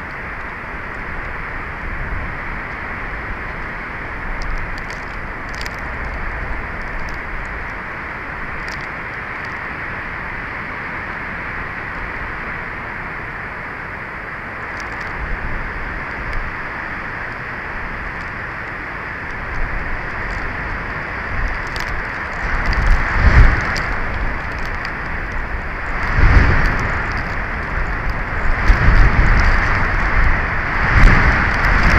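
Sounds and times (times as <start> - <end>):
strong wind on microphone: 0.0 - 31.9
faint ticks: 4.3 - 7.8, 8.6 - 9.6, 14.7 - 15.2, 21.4 - 31.9.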